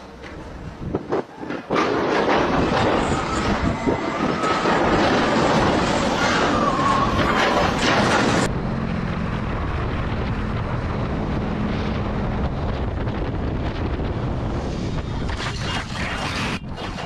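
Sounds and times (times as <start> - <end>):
loud rushing roar: 1.4 - 17.0
low engine hum: 8.0 - 15.4.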